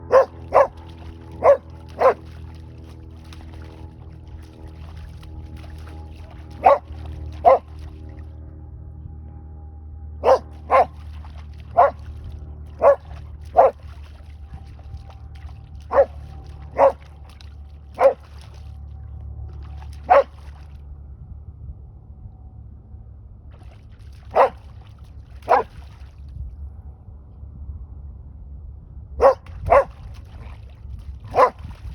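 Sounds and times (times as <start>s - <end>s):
dog barking: 0.0s - 0.8s, 1.4s - 2.2s, 6.6s - 7.7s, 10.2s - 11.0s, 11.7s - 12.0s, 12.8s - 13.8s, 15.9s - 17.0s, 18.0s - 18.2s, 20.0s - 20.3s, 24.3s - 24.6s, 25.5s - 25.7s, 29.2s - 29.9s, 31.3s - 31.6s
steady low rumble: 0.0s - 31.9s.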